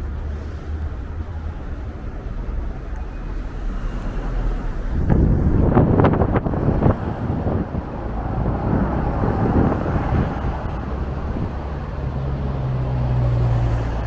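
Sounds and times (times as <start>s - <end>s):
city road traffic rumble: 0.0s - 14.0s
vehicle engine low hum: 0.0s - 14.0s
wind on microphone: 3.3s - 14.0s.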